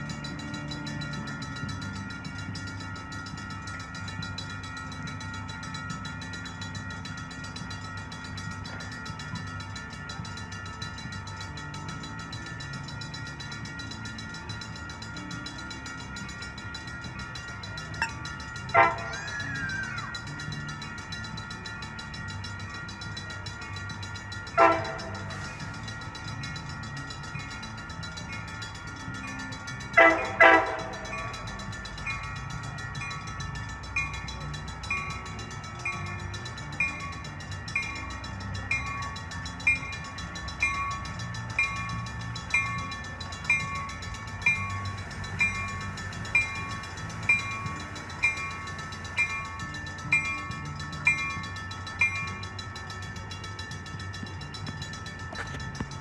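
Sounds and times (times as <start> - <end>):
railroad crossing bell ringing: 0.0 - 56.0
train horn toots: 18.7 - 19.8, 24.6 - 25.6, 29.9 - 31.6.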